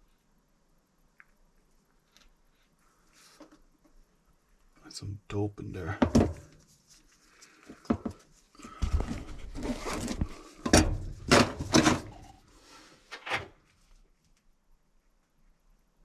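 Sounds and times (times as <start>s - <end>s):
metal pipe clanks and knocks: 6.0s - 6.5s, 10.7s - 12.1s.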